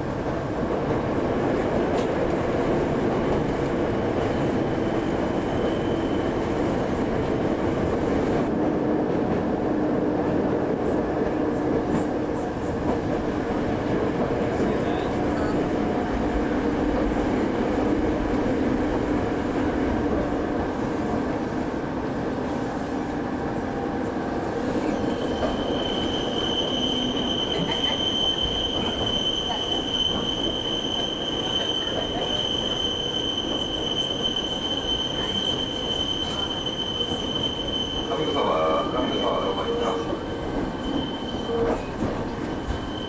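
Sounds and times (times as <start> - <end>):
train wheels rumbling: 0.0 - 43.0
high wheel squeal: 24.8 - 43.0.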